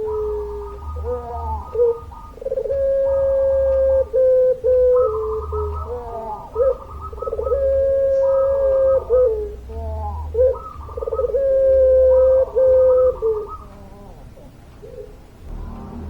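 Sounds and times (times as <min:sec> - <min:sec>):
dove cooing: 0:00.0 - 0:15.3
low hum: 0:13.8 - 0:16.0.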